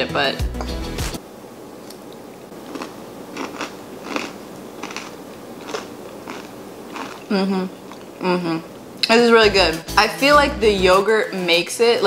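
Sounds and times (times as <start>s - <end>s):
crunchy chewing: 1.8s - 8.2s.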